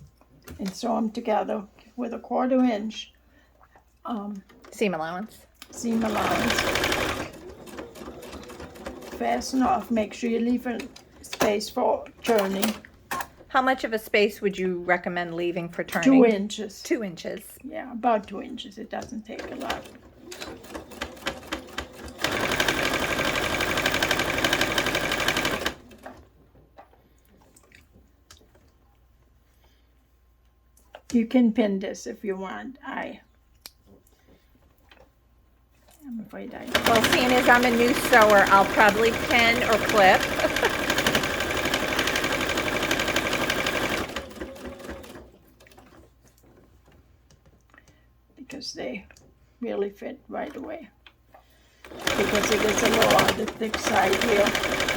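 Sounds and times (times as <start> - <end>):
sewing machine stitching: 5.7 - 13.5, 19.0 - 26.3, 36.5 - 46.6, 51.8 - 54.9.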